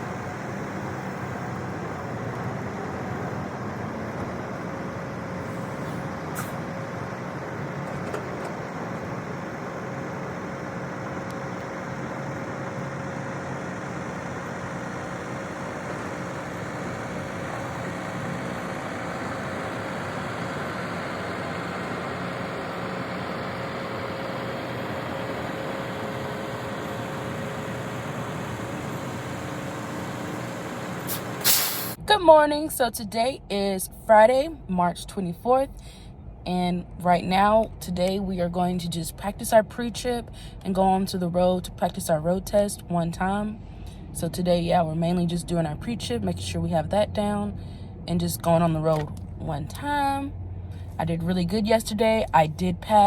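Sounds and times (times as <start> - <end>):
vehicle running noise: 0.0 - 53.0
faint constant hum: 32.0 - 53.0.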